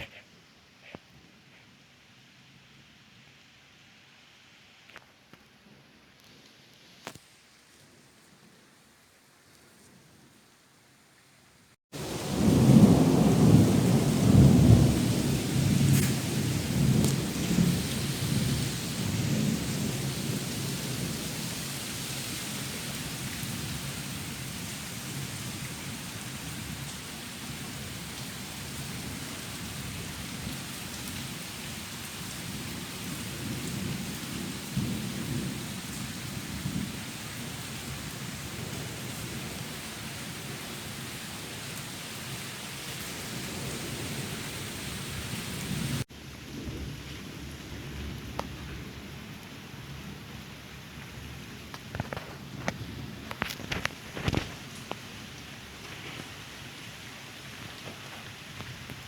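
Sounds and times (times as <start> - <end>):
thunder rumbling: 12.0 - 21.4
heavy rain falling: 12.0 - 59.0.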